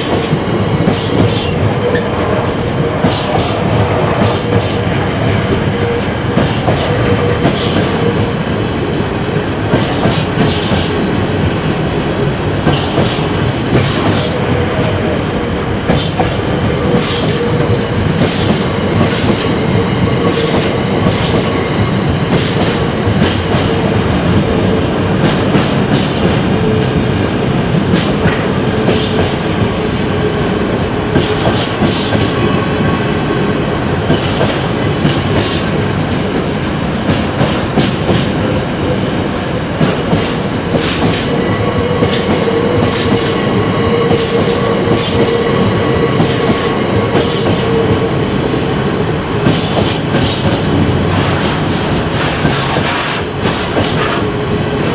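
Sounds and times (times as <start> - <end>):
train wheels clattering over joints: 9.7 - 11.0, 15.9 - 24.0, 25.2 - 26.5, 31.1 - 32.4, 34.0 - 35.7, 37.0 - 38.6, 39.8 - 41.4, 46.2 - 48.0, 49.4 - 54.3.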